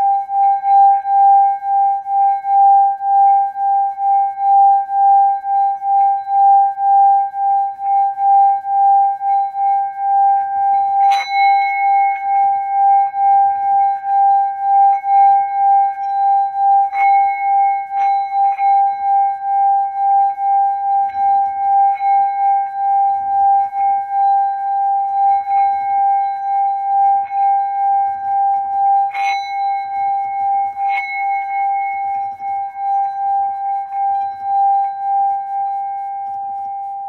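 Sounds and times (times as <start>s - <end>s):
singing bowl ringing: 0.0s - 37.0s
singing bowl struck clink: 0.0s - 37.0s.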